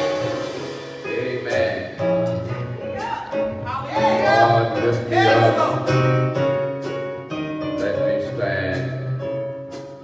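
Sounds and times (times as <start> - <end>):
keyboard bass and drums: 0.0 - 10.0
person singing gospel song: 3.0 - 6.0.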